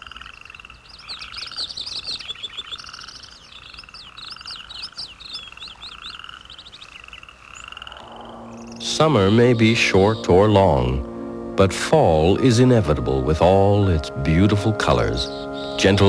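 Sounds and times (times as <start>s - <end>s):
high bird chirps: 0.0s - 11.2s, 15.2s - 16.0s
frogs calling in pulsed trills: 0.0s - 16.0s.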